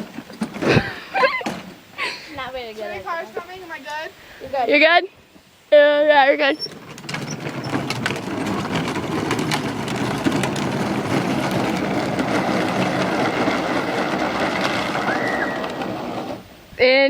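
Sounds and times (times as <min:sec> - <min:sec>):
toy wheels rolling on pavement: 0:00.0 - 0:04.8, 0:06.0 - 0:17.0.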